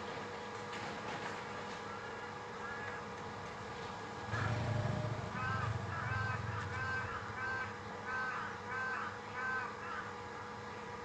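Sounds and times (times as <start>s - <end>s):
bird harsh calls: 5.3s - 10.1s.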